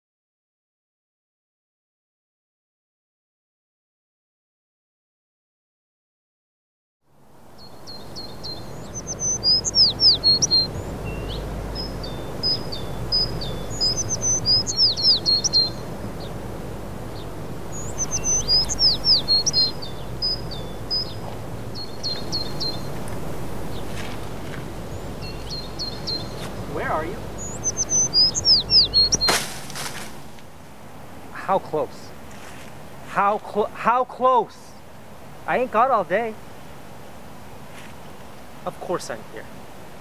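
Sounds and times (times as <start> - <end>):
low outdoor rumble: 7.2 - 40.0
songbird singing chirps and whistles: 7.5 - 30.3.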